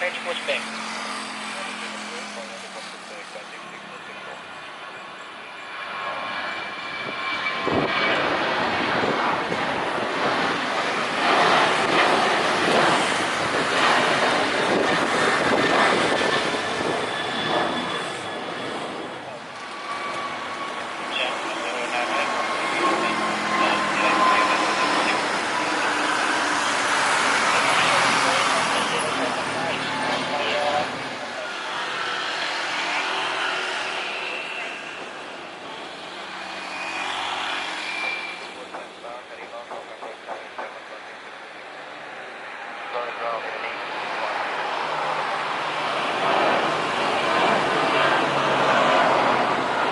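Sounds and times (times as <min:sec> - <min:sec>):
jet engines roaring: 0:00.0 - 0:49.9
thin high whine: 0:36.6 - 0:38.7.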